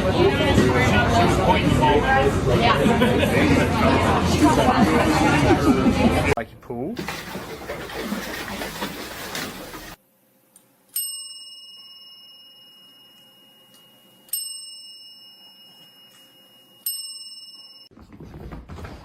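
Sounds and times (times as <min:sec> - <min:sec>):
small bell ringing: 0:11.0 - 0:17.9.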